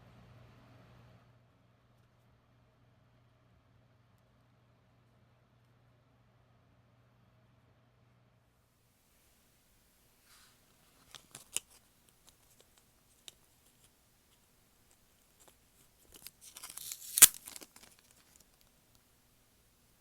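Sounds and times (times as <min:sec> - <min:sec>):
plastic packaging crinkling and tearing: 0:16.1 - 0:18.6.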